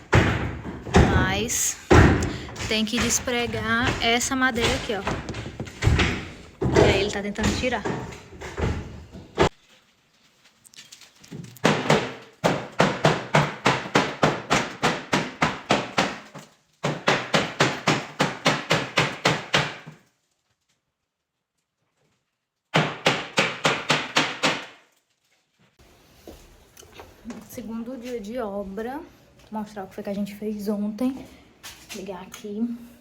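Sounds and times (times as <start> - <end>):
hammer blows on wooden boards: 0.0 - 9.5, 11.6 - 20.0, 22.7 - 24.8.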